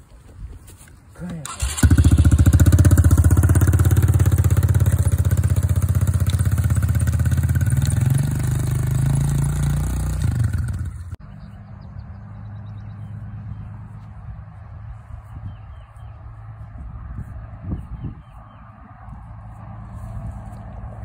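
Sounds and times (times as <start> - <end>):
dirt bike engine running: 1.5 - 11.2.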